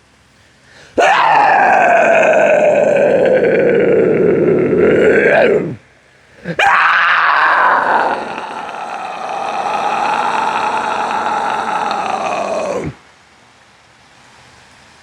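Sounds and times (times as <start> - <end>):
man imitating animal calls: 1.0 - 5.8, 6.4 - 13.0.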